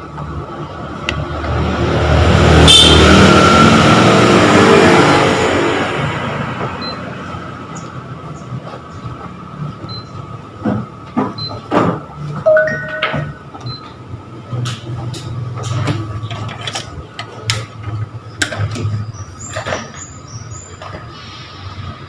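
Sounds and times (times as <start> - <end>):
short high beeps: 12.5 - 13.5
two-pitch electronic beep: 12.5 - 13.5.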